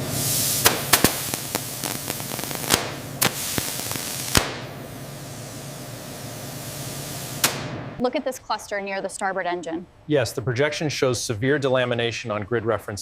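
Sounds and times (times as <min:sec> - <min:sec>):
steady hiss: 0:00.0 - 0:08.0
sharp cracks and crackles: 0:00.4 - 0:08.0.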